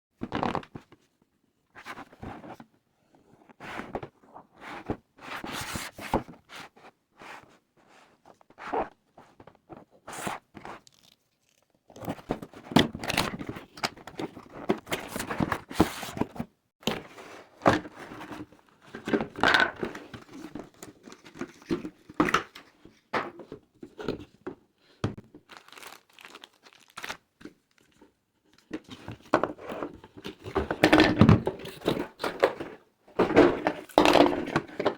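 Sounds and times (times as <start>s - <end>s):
packaging tearing and crinkling: 25.5s - 27.9s.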